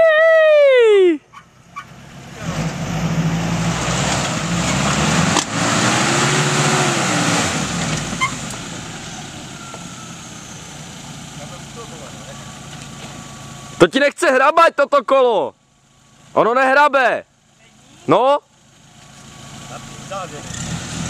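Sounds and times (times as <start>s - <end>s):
car engine revving under load: 1.3s - 13.8s, 18.6s - 21.0s.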